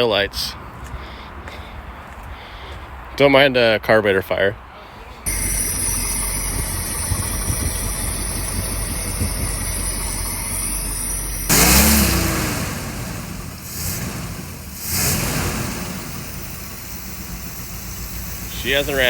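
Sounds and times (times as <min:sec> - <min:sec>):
car engine running: 0:05.3 - 0:19.0
engine revving: 0:05.3 - 0:19.0.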